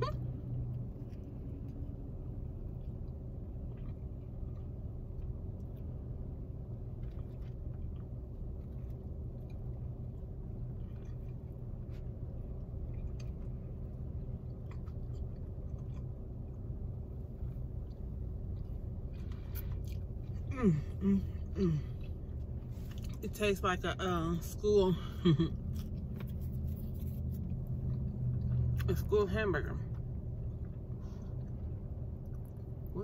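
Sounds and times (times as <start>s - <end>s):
steady low hum: 0.0s - 33.0s
person biting and chewing: 6.8s - 23.2s, 25.5s - 28.9s.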